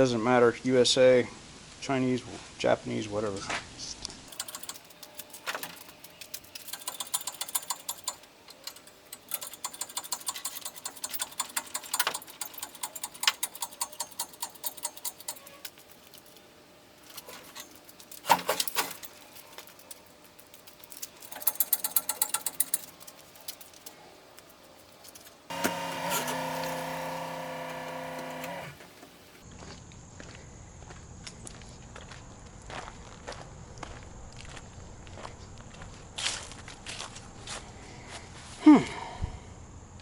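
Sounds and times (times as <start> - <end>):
ratchet wrench clicking: 4.3 - 16.2, 20.9 - 23.9.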